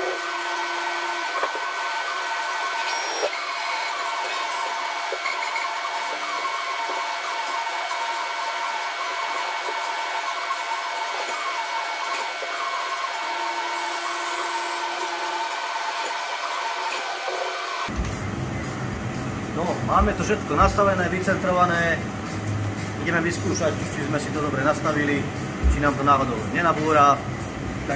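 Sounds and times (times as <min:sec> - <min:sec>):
high-pitched machinery whines: 0:00.0 - 0:27.9.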